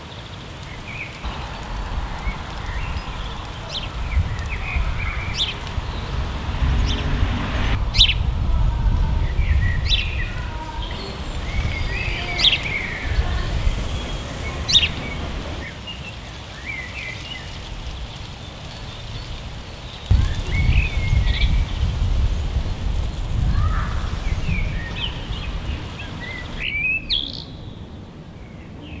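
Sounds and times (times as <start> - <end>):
outdoor background noise: 0.0 - 29.0
small birds chirping: 0.0 - 29.0
low rumble: 1.2 - 15.6.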